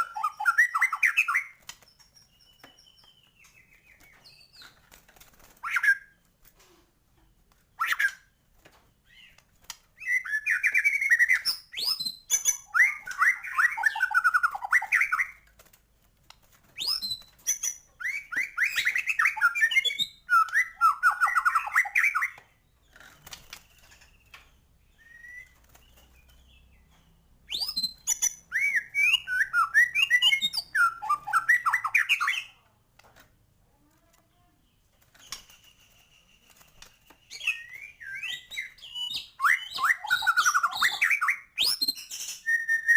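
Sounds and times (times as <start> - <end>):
bird singing trills and whistles: 0.0 - 4.8, 10.0 - 15.4, 16.7 - 32.6, 35.0 - 42.9.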